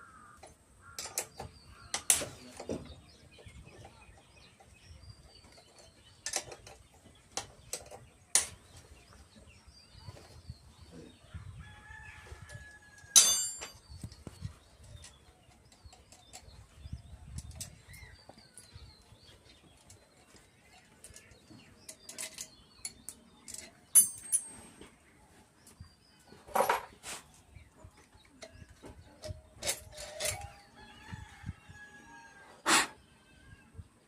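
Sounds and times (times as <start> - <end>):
tools clinking on metal: 0.9 - 2.7, 12.9 - 14.2, 19.8 - 24.8, 28.4 - 30.7
ringing metallic clang: 13.2 - 13.9, 24.0 - 24.7.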